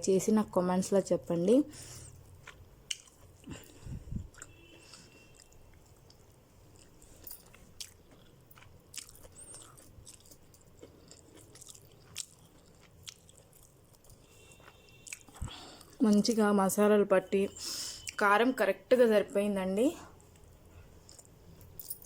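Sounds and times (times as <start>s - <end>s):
person chewing and biting: 2.0s - 16.0s
mouth clicks and crunches: 2.4s - 16.3s.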